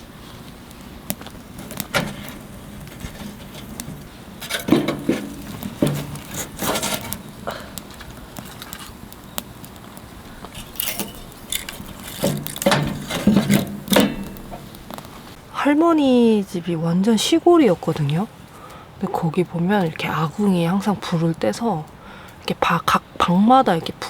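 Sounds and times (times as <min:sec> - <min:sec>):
small objects clattering: 0:01.1 - 0:15.4.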